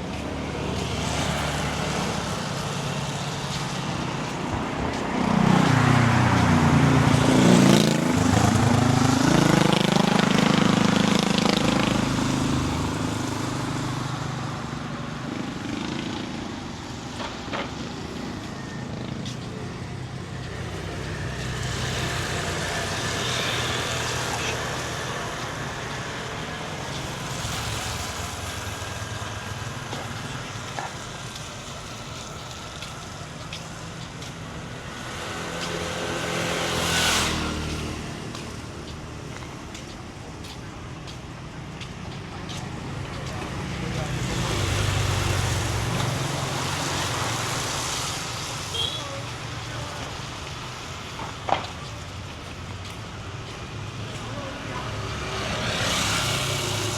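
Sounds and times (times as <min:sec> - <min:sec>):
vehicle passing close: 0:00.0 - 0:30.2
road traffic passing: 0:00.0 - 0:56.9.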